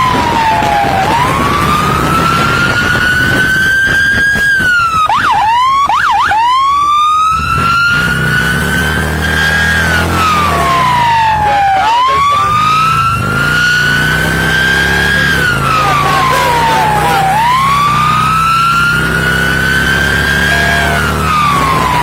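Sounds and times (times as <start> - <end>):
police siren wailing: 0.0 - 22.0
vehicle engine hum: 6.7 - 22.0.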